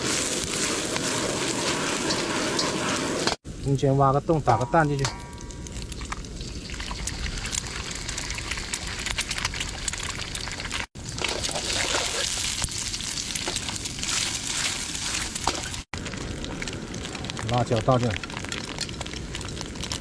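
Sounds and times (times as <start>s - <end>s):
crackling fat spatters: 0.0s - 3.4s, 4.7s - 20.0s
food sizzling in a wok: 0.0s - 3.4s, 10.0s - 15.9s.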